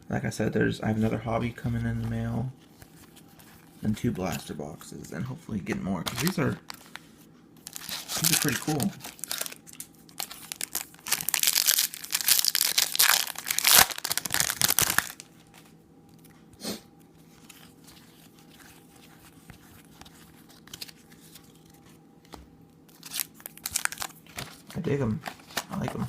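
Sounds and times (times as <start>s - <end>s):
faint steady hum: 0.0s - 26.0s
foil wrapper tearing and crinkling: 7.6s - 15.3s, 22.9s - 24.6s.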